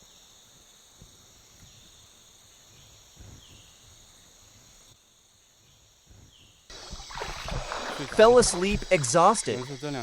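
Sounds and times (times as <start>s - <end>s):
crickets chirping: 0.0s - 10.0s
soft low thumps: 6.7s - 9.5s.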